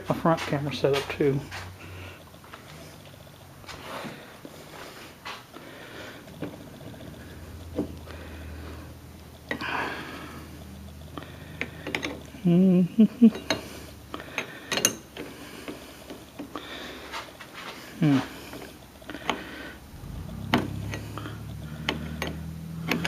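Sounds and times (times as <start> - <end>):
low steady hum: 18.0 - 23.0.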